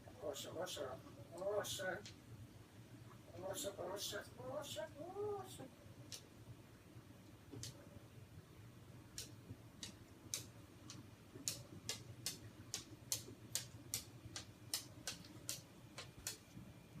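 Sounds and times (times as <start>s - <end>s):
sharp dry clicks: 9.1s - 16.6s.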